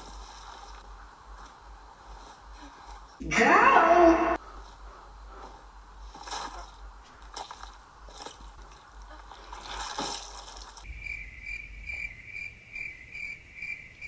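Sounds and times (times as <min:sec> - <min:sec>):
soft rustles: 0:00.0 - 0:03.2, 0:04.4 - 0:10.9
crickets chirping: 0:10.8 - 0:14.0.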